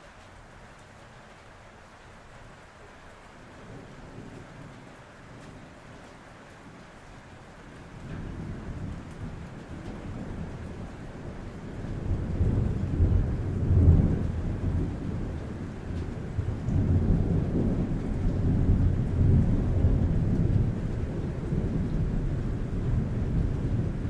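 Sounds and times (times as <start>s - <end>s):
rain on a roof: 0.0s - 24.0s
thunder rumbling: 7.8s - 24.0s.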